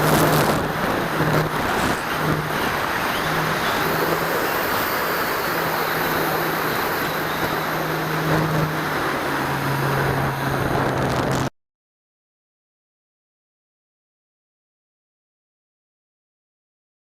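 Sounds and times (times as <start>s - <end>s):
propeller drone: 0.0s - 11.5s
wind rushing over microphone: 0.0s - 11.5s.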